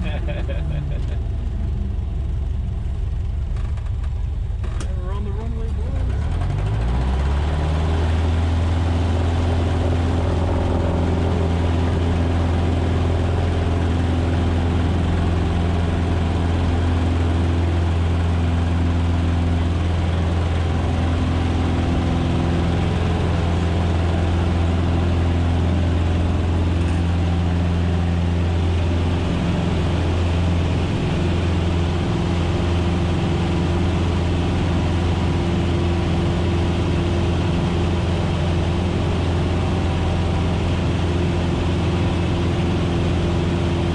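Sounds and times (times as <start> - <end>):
propeller plane engine drone: 0.0 - 43.9.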